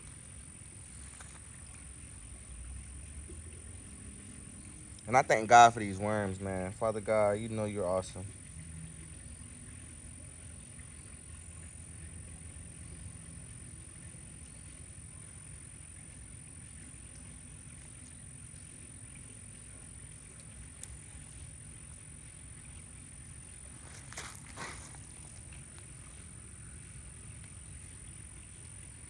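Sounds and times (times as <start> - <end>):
faint high whine: 0.0 - 29.0
low outdoor rumble: 0.0 - 29.0
rustling scrapes: 23.7 - 25.4.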